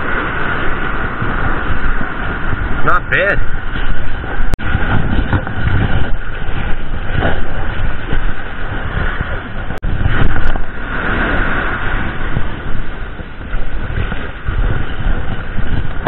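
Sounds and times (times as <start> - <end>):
surf washing: 0.0 - 16.0
wind buffeting microphone: 0.0 - 16.0.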